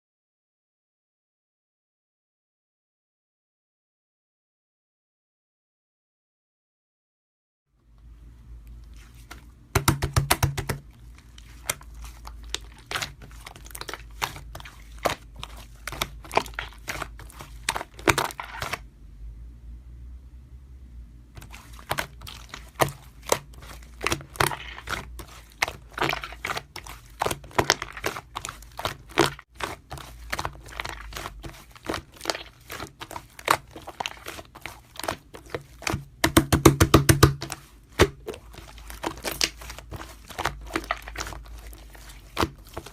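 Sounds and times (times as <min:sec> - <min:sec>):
material crinkling: 0:08.7 - 0:18.8, 0:21.4 - 0:42.9.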